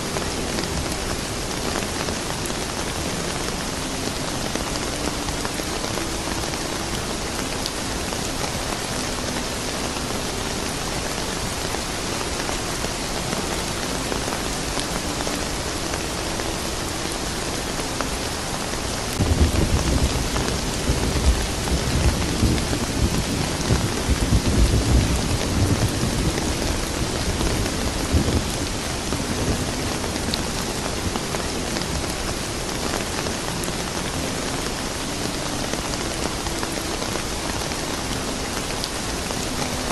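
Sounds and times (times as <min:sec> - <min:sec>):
steady rain: 0:00.0 - 0:39.9
thunder rumbling: 0:19.2 - 0:32.2.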